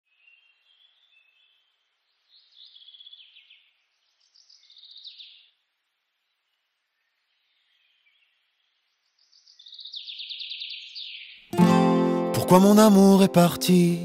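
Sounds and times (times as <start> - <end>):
low outdoor hiss: 0.1 - 9.8
soft bird chirps: 0.1 - 11.5.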